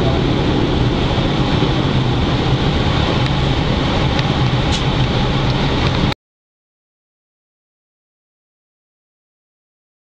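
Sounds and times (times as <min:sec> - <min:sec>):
train wheels and motors rumbling: 0:00.0 - 0:06.2.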